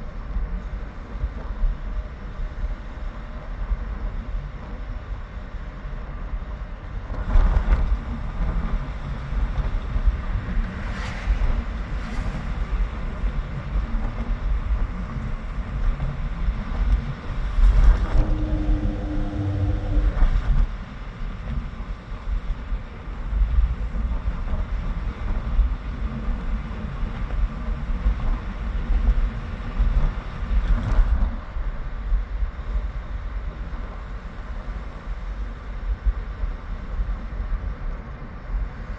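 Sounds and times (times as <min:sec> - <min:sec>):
wind buffeting microphone: 0:14.9 - 0:20.9
engine-like hum: 0:17.5 - 0:21.0.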